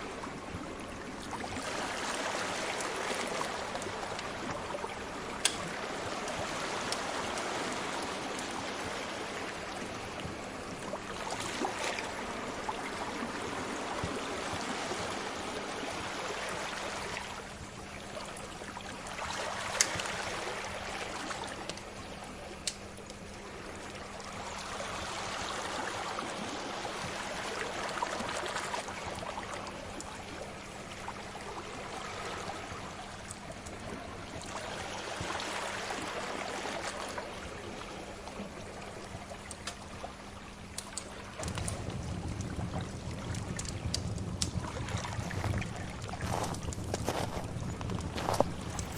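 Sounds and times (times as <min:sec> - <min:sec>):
sea waves washing in: 0:00.0 - 0:17.6
faint steady hum: 0:00.0 - 0:48.9
fire crackling pops: 0:05.4 - 0:05.8, 0:40.8 - 0:44.7, 0:45.4 - 0:48.9.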